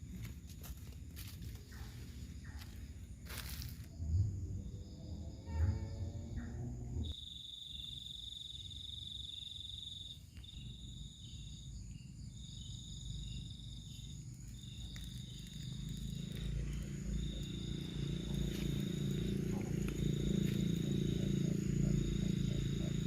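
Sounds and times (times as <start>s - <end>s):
insect trilling: 4.8s - 23.0s
low rumble: 15.6s - 23.0s.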